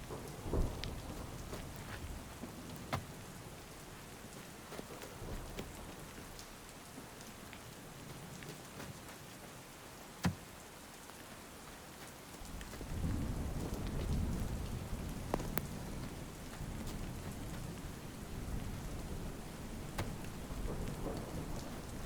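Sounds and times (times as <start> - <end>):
low rumble of thunder: 0.0 - 6.8, 12.4 - 22.0
raindrops ticking: 0.0 - 22.0
steady rain: 0.0 - 22.0.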